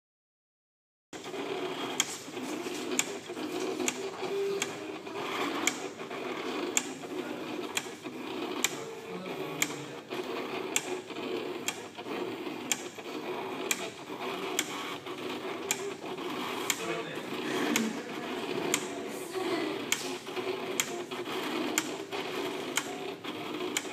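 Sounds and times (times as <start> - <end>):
paper-cutting machine motor whir: 1.2 - 23.9
sharp clicks: 14.5 - 15.0.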